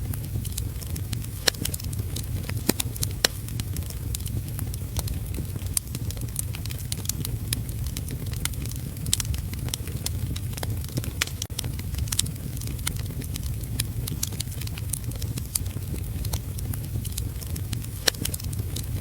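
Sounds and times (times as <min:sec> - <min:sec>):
low rushing fire noise: 0:00.0 - 0:19.0
wood fire crackling and popping: 0:00.0 - 0:19.0.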